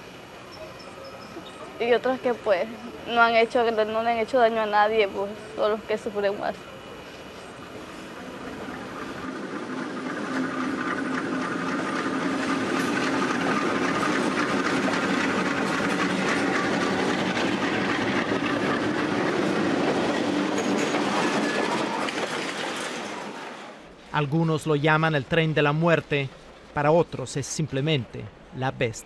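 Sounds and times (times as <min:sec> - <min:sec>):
freight train passing: 0:00.0 - 0:29.0
train wheels clattering on rails: 0:07.8 - 0:23.8.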